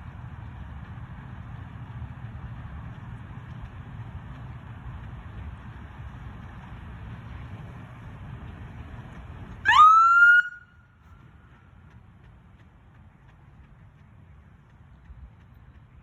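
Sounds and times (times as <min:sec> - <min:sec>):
low steady rumble: 0:00.0 - 0:16.0
police siren whoop: 0:09.7 - 0:10.7.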